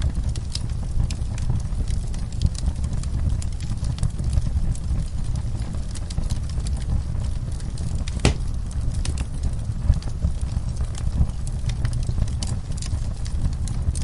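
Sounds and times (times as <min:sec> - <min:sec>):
fireplace fire crackling: 0:00.0 - 0:14.0
sharp pops: 0:08.2 - 0:08.6.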